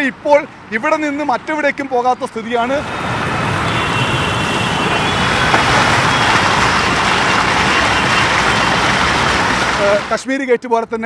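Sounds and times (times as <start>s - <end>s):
floodwater rushing along road: 2.6s - 10.2s.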